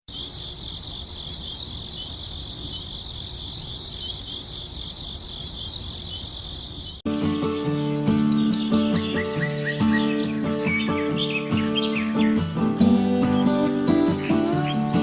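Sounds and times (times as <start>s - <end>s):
insects chirping: 0.1s - 15.0s.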